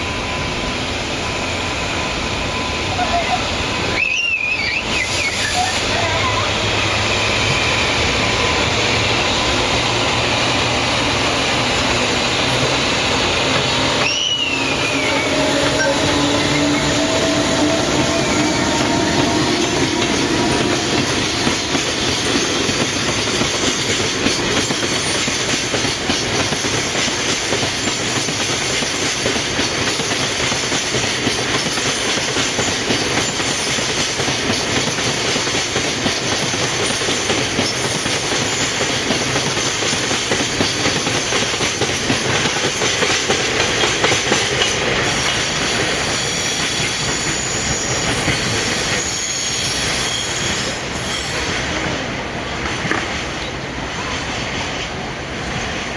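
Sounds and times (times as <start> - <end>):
freight train rumbling past: 0.0 - 55.9
high wheel squeal: 0.1 - 9.9, 13.7 - 23.3, 45.0 - 51.8.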